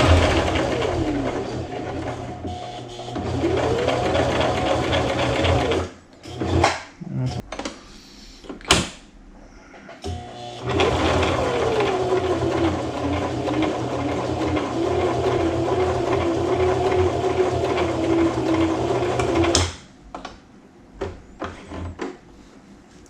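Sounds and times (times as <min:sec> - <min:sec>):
sewing machine stitching: 0:00.0 - 0:06.8, 0:10.0 - 0:19.7.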